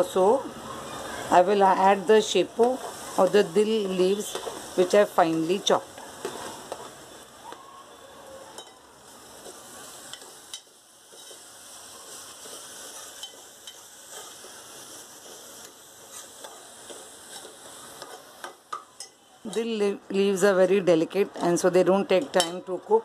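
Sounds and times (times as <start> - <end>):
food sizzling in oil: 0.0 - 23.0
spatula tapping and scraping pot: 16.1 - 19.7, 22.2 - 22.6.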